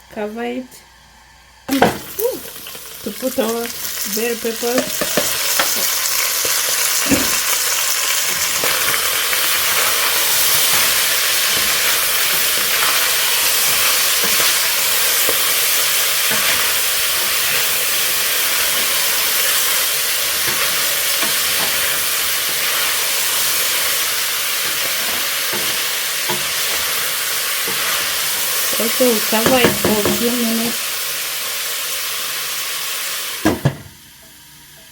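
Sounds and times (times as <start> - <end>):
food sizzling in hot oil: 1.7 - 34.9
stirring knocks: 4.8 - 7.6, 29.3 - 30.4.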